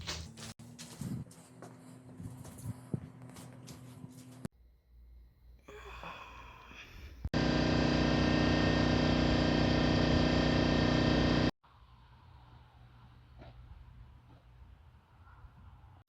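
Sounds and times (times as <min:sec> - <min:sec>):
loud machine hum: 0:07.4 - 0:11.6.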